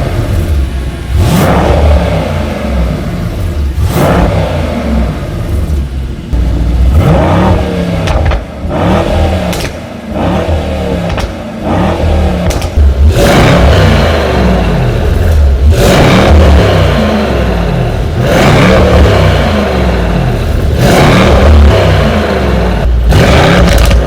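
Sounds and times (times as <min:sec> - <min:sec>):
car engine revving: 0:00.0 - 0:24.0
loud exhaust: 0:00.0 - 0:24.0.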